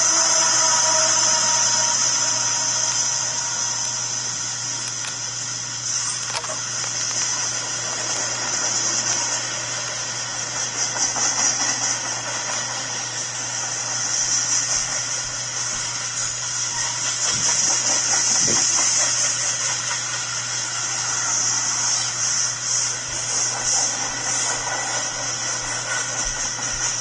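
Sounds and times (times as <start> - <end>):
diesel locomotive passing: 0.0 - 6.0, 6.6 - 27.0
freight cars rolling on rails: 0.0 - 27.0
high hiss: 0.0 - 27.0.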